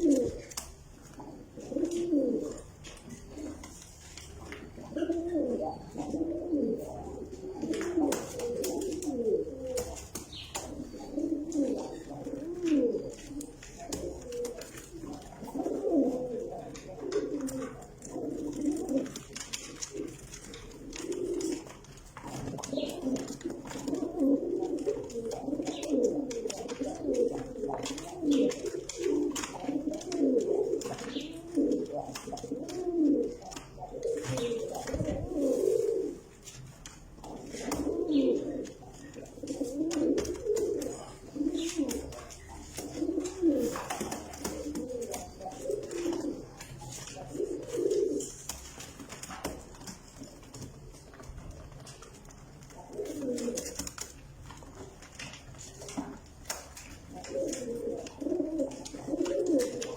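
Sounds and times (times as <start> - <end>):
pigeons cooing: 0.0 - 59.9.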